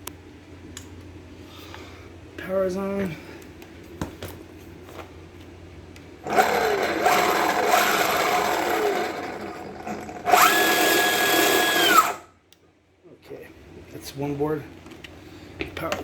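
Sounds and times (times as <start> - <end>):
electric motor whirring and whining: 6.2 - 12.3.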